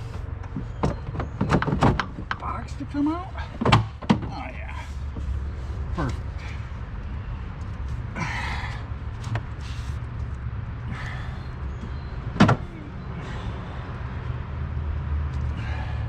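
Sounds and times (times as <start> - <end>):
plastic parts knocking and clunking: 0.5 - 2.4, 3.5 - 4.4
steady low rumble: 2.0 - 16.0.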